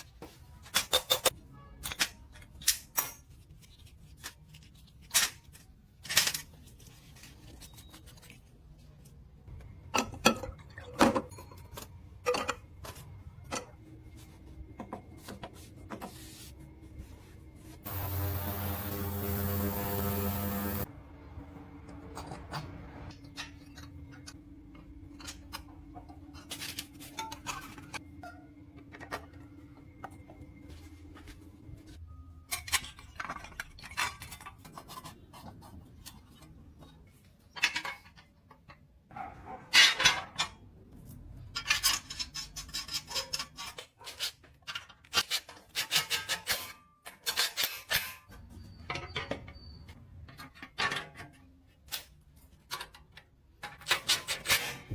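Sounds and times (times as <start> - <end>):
steady low hum: 17.8 - 23.1.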